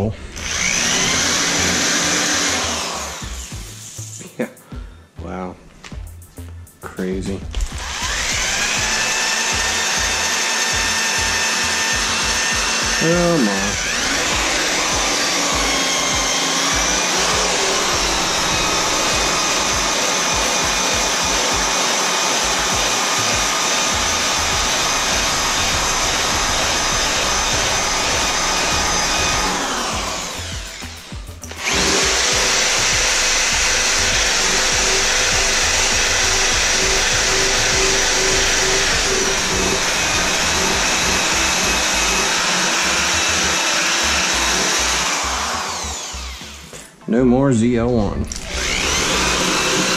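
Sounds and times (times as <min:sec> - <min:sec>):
power tool stripping paint from metal: 0:00.3 - 0:04.1, 0:07.5 - 0:46.9, 0:48.3 - 0:49.9.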